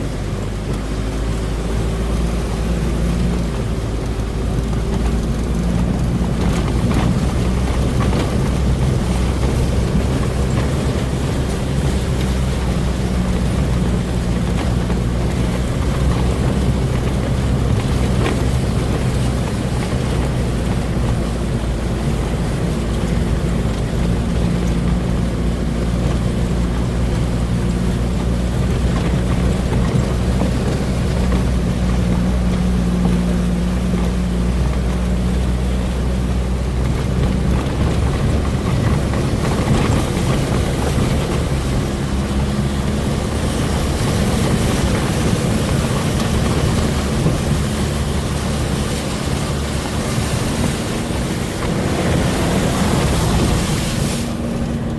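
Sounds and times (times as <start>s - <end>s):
boat engine running: 0.0s - 54.9s
water rushing: 0.0s - 54.9s
wind noise: 0.0s - 54.9s.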